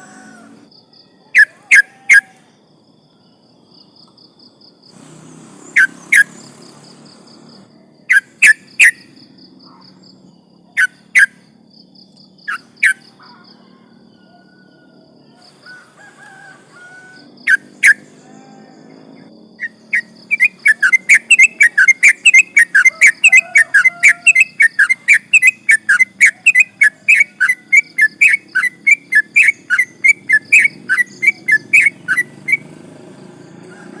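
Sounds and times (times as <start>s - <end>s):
bulbul calls and chattering: 5.0s - 13.6s, 19.6s - 32.7s.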